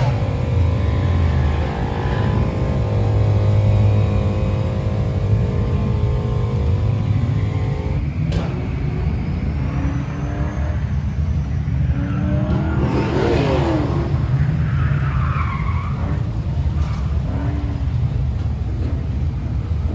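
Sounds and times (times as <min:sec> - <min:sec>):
car engines idling: 0:00.0 - 0:12.0, 0:13.7 - 0:19.9
tire squeal: 0:00.0 - 0:17.9
car revving and pulling away: 0:00.0 - 0:19.9.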